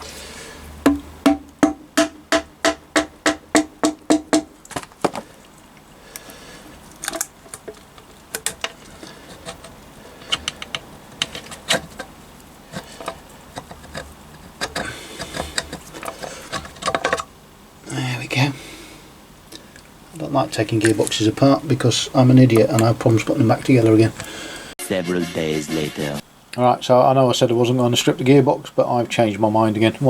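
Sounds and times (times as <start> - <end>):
hammer tapping on metal: 0.8 - 4.6
metallic clicks and knocks: 7.0 - 12.1, 12.7 - 17.3.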